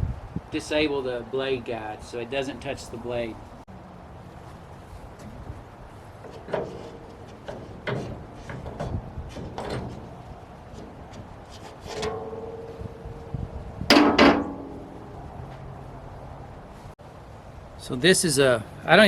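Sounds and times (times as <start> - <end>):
metal clanks and knocks: 5.2 - 15.7
loud ringing metal strikes: 12.0 - 15.3.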